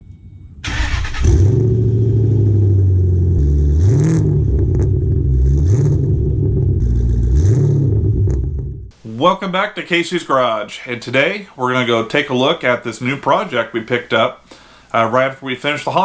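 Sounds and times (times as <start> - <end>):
car engine revving: 0.6 - 8.9.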